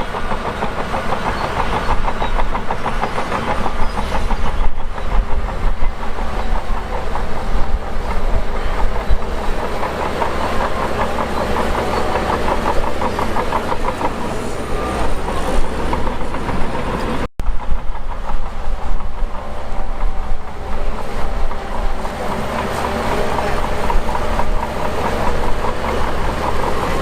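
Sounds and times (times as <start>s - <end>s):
bulldozer diesel engine rumbling: 0.0s - 27.0s
steel tracks clattering: 0.0s - 27.0s.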